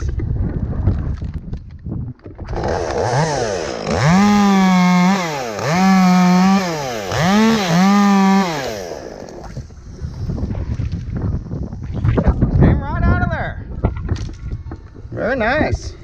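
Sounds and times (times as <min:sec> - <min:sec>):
chainsaw revving and cutting wood: 0:02.5 - 0:09.6.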